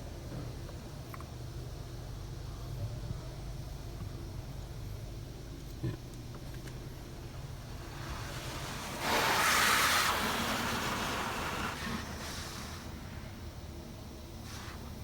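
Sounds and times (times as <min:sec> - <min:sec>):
steady low hum: 0:00.0 - 0:15.0
car wash spraying foam: 0:07.2 - 0:13.5.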